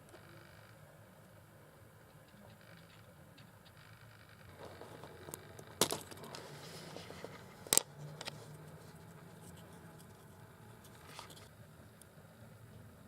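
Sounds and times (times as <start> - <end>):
faint scraping: 4.0 - 11.5.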